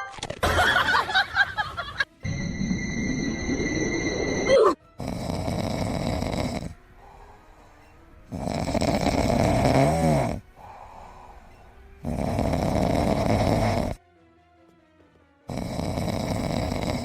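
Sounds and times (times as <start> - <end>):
wavering whistle in a snore: 2.2 - 6.8
pet snoring loudly: 4.2 - 14.0, 15.5 - 17.0.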